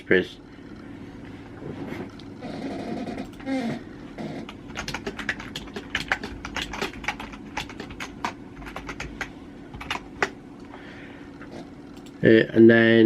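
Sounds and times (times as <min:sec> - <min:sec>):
steady low hum: 0:00.0 - 0:13.0
keyboard typing clicks: 0:04.5 - 0:10.4.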